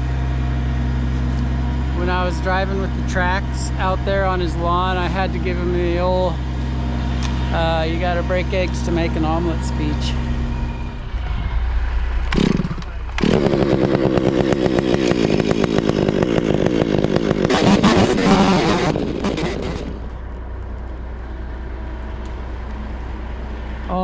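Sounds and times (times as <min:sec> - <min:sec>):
low engine drone: 0:00.0 - 0:15.1, 0:17.4 - 0:24.0
chainsaw at high revs: 0:12.4 - 0:20.2.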